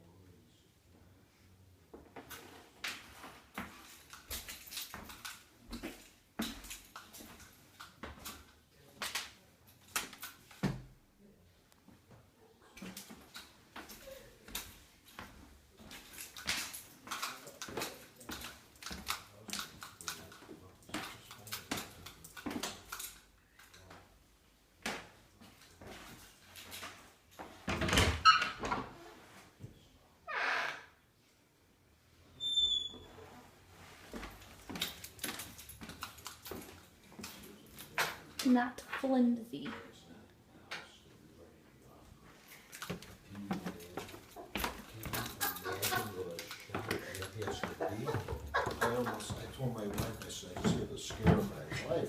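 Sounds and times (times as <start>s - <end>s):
knocks and thumps in room: 10.5s - 11.0s, 46.8s - 52.0s
door squeak: 27.9s - 29.0s, 30.3s - 31.0s, 32.4s - 33.3s.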